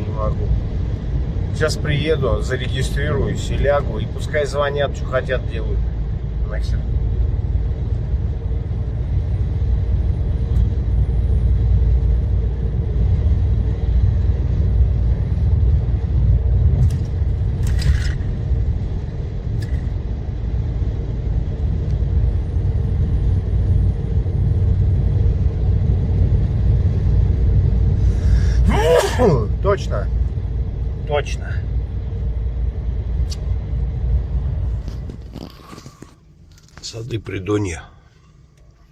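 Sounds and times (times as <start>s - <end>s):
road noise: 0.0s - 38.9s
truck engine rumble: 0.0s - 38.9s.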